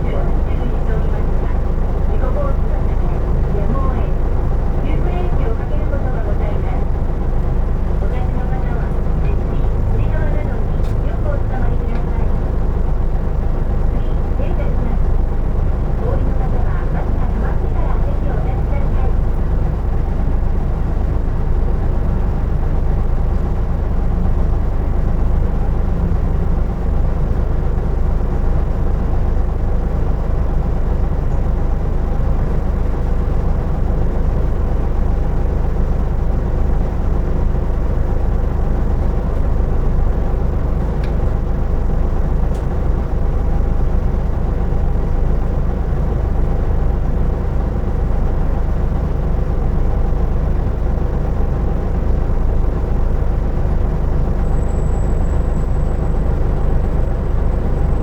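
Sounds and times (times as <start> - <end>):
bus diesel engine rumble: 0.0 - 58.0.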